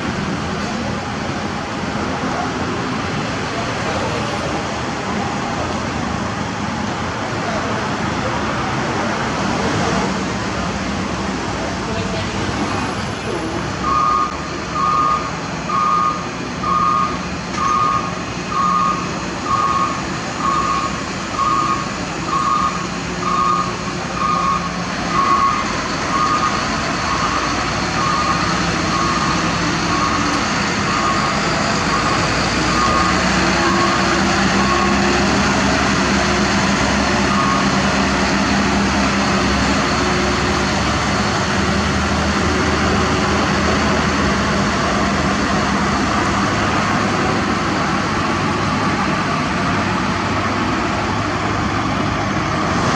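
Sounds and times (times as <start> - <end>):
truck engine running: 0.0 - 52.9
truck reversing alarm beeping: 13.4 - 45.0.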